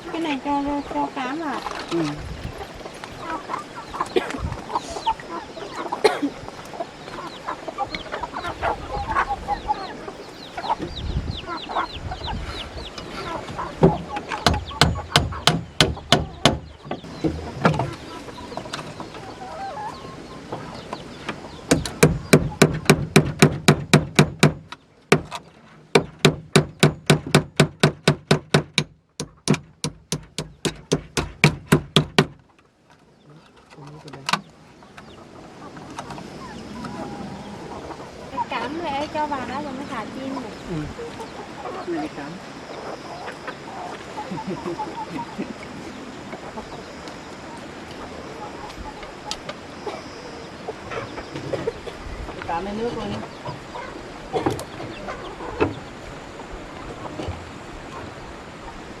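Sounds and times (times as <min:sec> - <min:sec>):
chickens clucking: 0:00.0 - 0:27.0, 0:29.2 - 0:59.0
hammer driving nails into wood: 0:21.7 - 0:25.4, 0:26.0 - 0:32.4.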